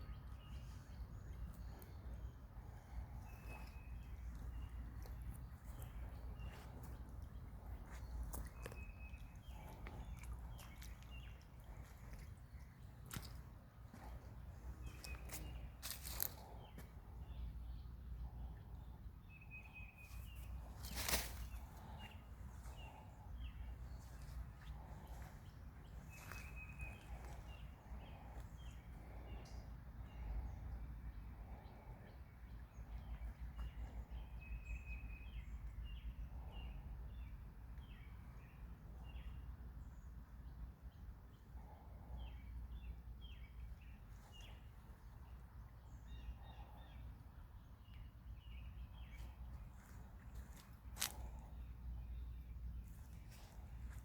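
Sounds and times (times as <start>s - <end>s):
steady low rumble: 0.0s - 37.6s
small birds chirping: 0.0s - 54.0s.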